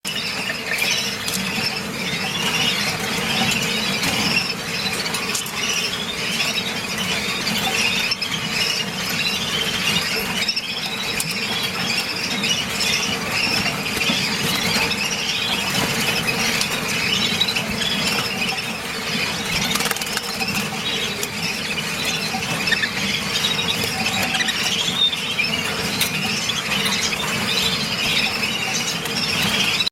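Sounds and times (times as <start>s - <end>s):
canaries warbling: 0.1s - 29.9s.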